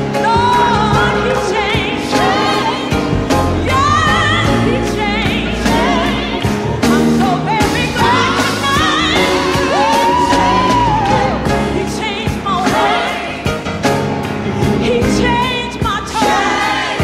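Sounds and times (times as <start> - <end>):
person singing gospel song: 0.0 - 13.5.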